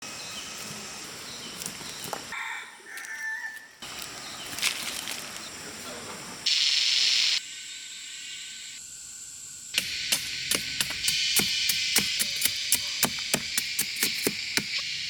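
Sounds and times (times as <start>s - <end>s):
chickens and birds calling: 0.1s - 4.7s
loud steady hiss: 5.2s - 15.0s.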